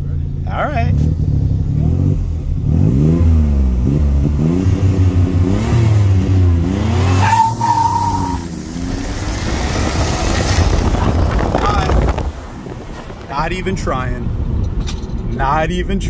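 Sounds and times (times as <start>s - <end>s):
car engine revving: 0.1s - 14.8s.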